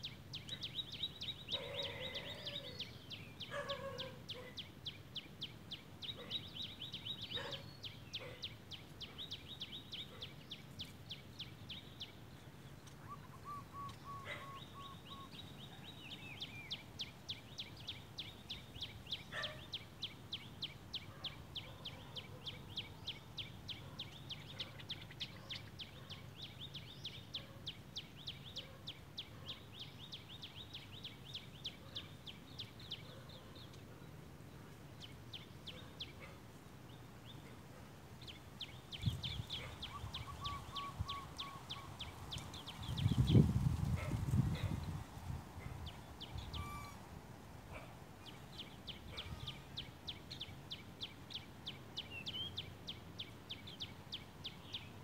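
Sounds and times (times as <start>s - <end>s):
lower bird calls: 0.0s - 33.8s, 38.2s - 54.0s
birds calling high notes: 13.0s - 15.6s, 46.2s - 47.1s.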